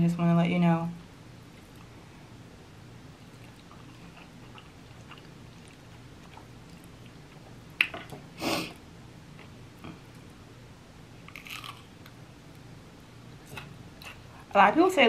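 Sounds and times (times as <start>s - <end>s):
chewing soft food: 3.2s - 8.2s, 11.2s - 12.6s.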